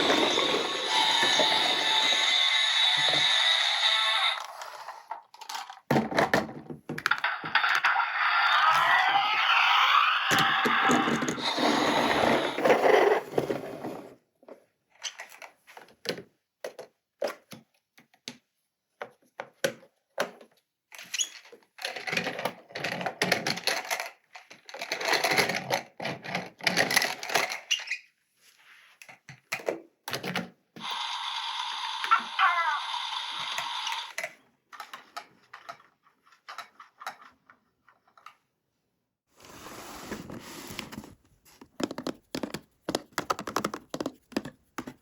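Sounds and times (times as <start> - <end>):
plastic parts clicking and tapping: 15.0 - 20.6, 34.1 - 38.5, 41.6 - 45.0.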